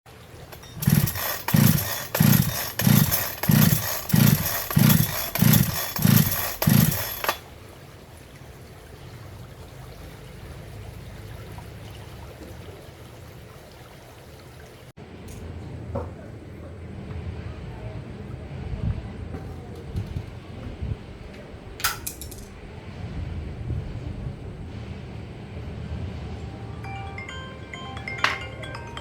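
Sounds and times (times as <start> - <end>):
chainsaw engine revving: 0.5 - 7.4.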